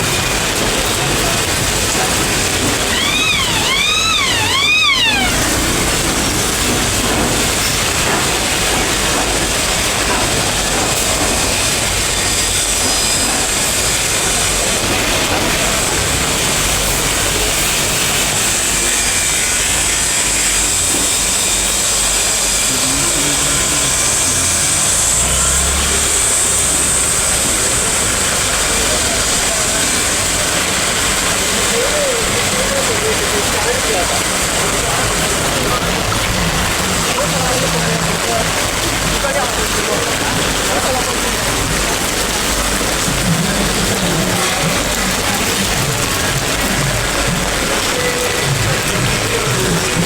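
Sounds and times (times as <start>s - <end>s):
steady rain: 0.0s - 50.0s
street traffic: 0.0s - 50.0s
high calls rising and falling: 2.8s - 6.1s.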